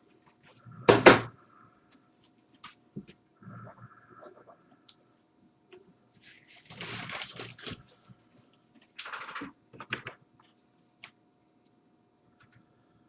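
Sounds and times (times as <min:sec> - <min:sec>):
rustling noise: 0:05.8 - 0:08.5.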